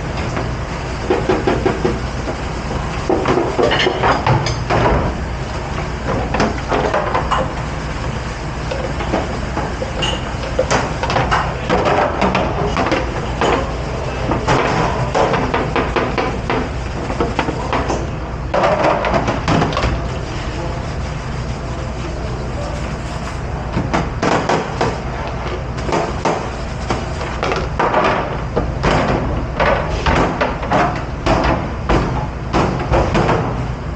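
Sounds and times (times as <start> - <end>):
low machine hum: 20.1 - 23.9.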